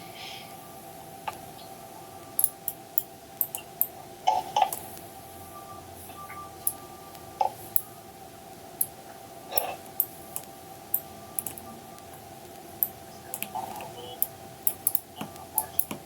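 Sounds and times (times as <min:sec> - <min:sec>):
faint steady hum: 0:00.0 - 0:16.0
mouse and keyboard clicking: 0:02.4 - 0:03.9, 0:08.8 - 0:16.0.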